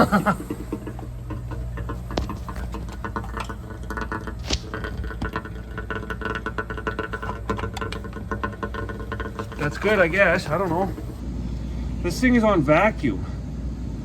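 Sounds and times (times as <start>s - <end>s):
water trickling from drain: 0.0s - 11.2s
furnace humming: 0.0s - 13.0s.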